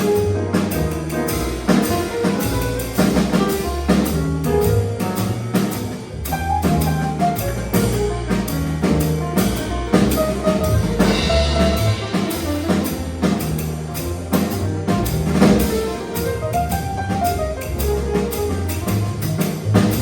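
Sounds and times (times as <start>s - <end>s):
bass line: 0.0s - 20.0s
drum kit: 0.0s - 20.0s.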